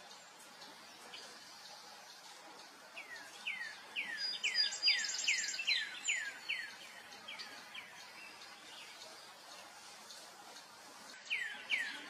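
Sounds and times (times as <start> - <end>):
bird calling with whistled notes: 3.0 - 9.0, 11.2 - 12.0.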